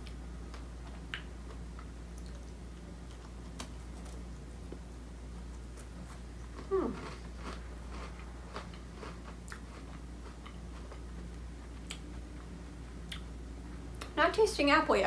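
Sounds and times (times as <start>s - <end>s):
person chewing crunchy cookie: 5.4s - 13.3s.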